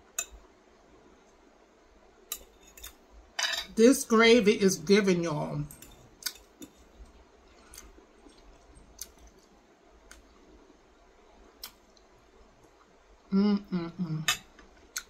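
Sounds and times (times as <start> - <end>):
quiet chewing: 6.2 - 10.4.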